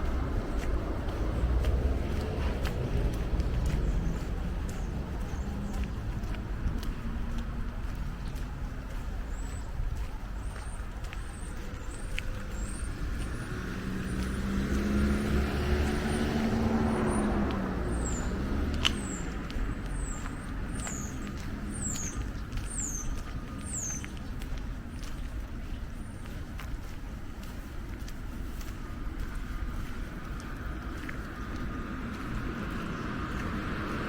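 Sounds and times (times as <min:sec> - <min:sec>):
car driving past: 0:00.0 - 0:08.4, 0:11.4 - 0:22.6
songbird chirping: 0:00.0 - 0:34.0.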